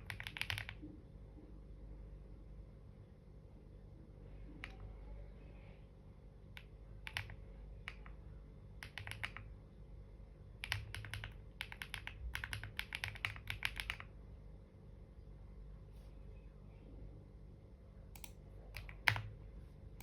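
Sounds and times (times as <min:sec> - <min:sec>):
typing on computer keyboard: 0:00.0 - 0:00.8, 0:06.6 - 0:08.2, 0:08.8 - 0:09.5, 0:10.6 - 0:14.1, 0:18.2 - 0:19.3.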